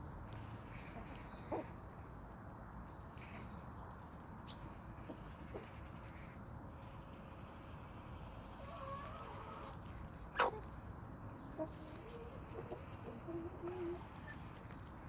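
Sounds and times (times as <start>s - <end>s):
chickens clucking: 11.6s - 14.3s.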